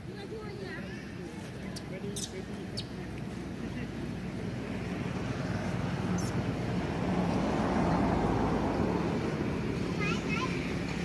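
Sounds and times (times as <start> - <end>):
vehicle engine passing: 2.4 - 11.0.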